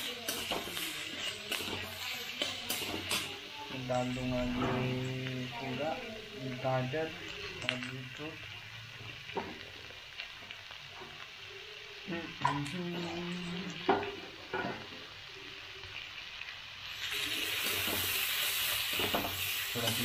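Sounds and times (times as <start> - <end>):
metal spatula scraping a pan: 0.0 - 5.1
vegetables sizzling in a pan: 0.0 - 20.0.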